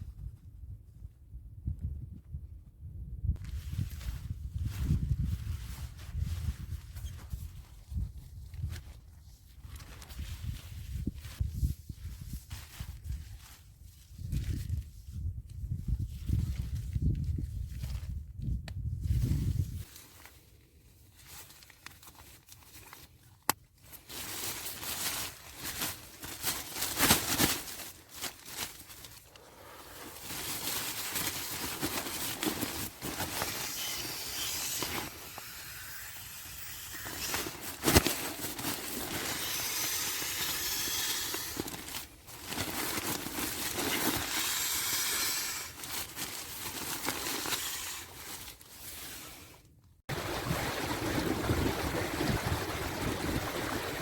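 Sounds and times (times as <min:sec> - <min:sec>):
wind blowing in gusts: 0:00.0 - 0:08.9, 0:14.1 - 0:19.9, 0:50.1 - 0:54.0.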